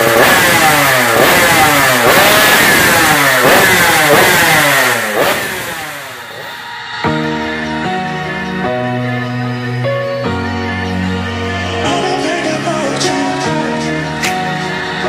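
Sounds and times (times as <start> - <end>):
two-stroke motorbike revving: 0.0 - 6.6.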